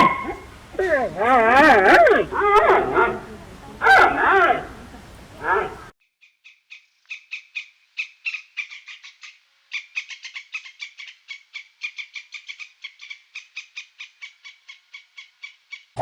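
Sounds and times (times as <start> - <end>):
animal chirping calls: 0.0 - 5.9.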